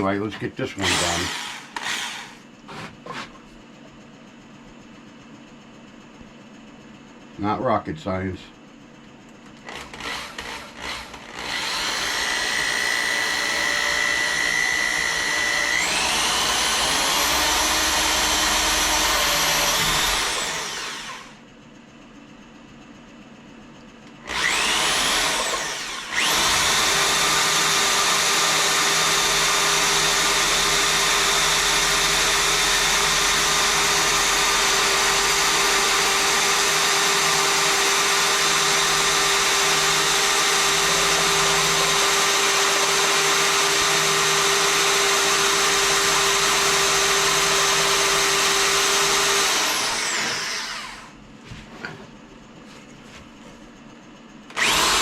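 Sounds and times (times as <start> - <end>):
electric drill boring wood: 0.8 - 3.3, 9.6 - 21.4, 24.2 - 51.2, 54.5 - 55.0.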